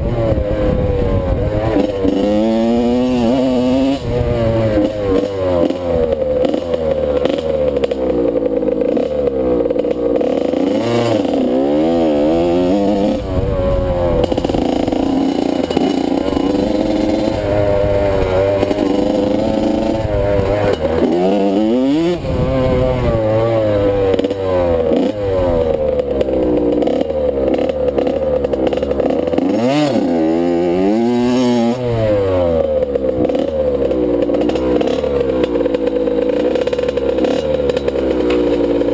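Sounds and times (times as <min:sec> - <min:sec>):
motocross bike engine revving: 0:00.0 - 0:38.9
clattering from bike: 0:04.6 - 0:11.6, 0:14.2 - 0:30.2, 0:32.8 - 0:38.9.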